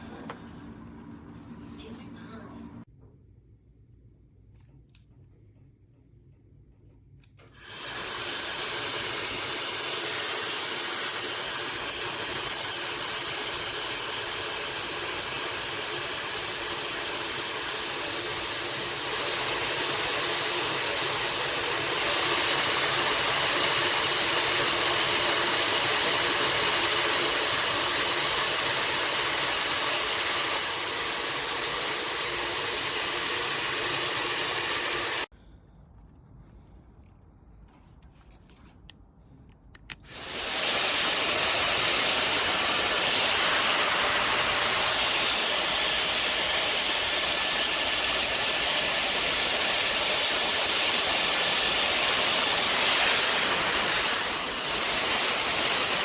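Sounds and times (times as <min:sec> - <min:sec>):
hair dryer running with high whine: 0:07.4 - 0:35.3, 0:40.1 - 0:56.0.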